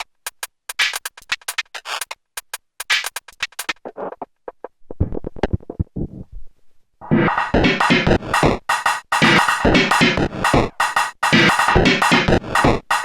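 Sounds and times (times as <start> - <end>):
clicky percussive synth hits: 7.1 - 13.0.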